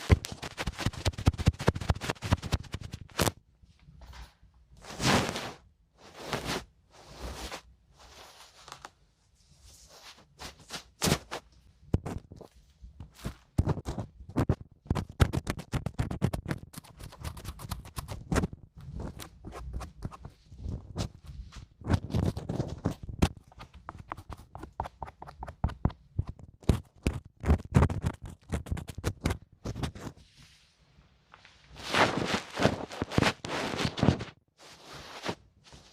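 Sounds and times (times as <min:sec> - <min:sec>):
scraping and rubbing strokes: 0:00.0 - 0:03.3, 0:04.8 - 0:11.5, 0:12.4 - 0:35.9.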